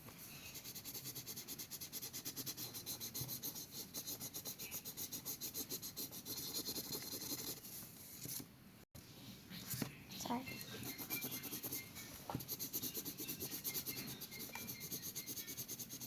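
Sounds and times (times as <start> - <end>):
marker scribbling on paper: 0.6 - 7.7, 10.4 - 16.0.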